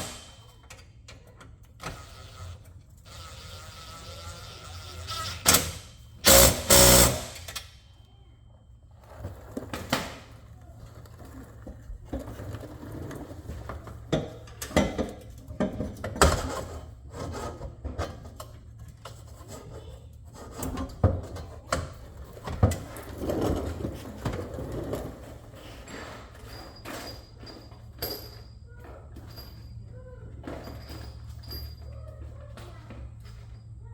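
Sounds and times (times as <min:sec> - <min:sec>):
tools and car parts clanking: 0:00.0 - 0:01.6, 0:05.3 - 0:07.8, 0:20.5 - 0:32.0.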